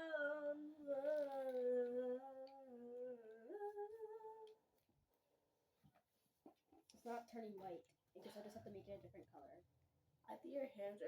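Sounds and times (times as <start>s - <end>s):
girl humming a slow tune: 0.0s - 4.5s.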